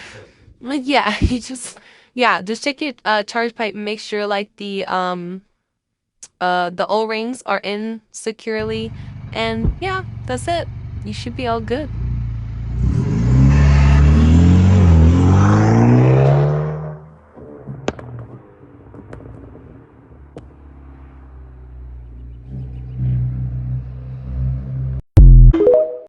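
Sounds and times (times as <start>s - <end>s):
car engine revving and idling: 8.6s - 19.3s, 20.0s - 25.0s.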